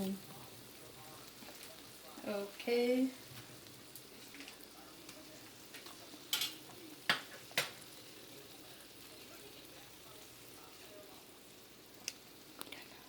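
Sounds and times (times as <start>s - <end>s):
faint steady hiss: 0.0s - 13.0s
utensils knocking against pan: 6.3s - 7.8s.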